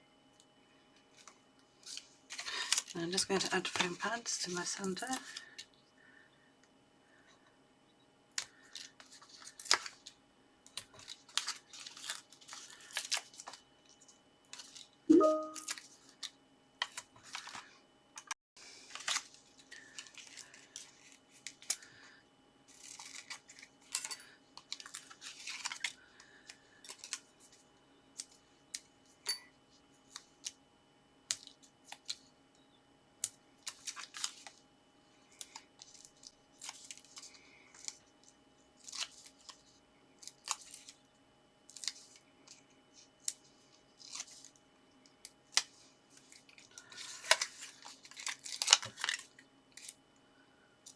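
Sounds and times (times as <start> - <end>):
paper rustling and scraping: 8.7 - 10.1, 10.9 - 14.9, 22.7 - 25.9.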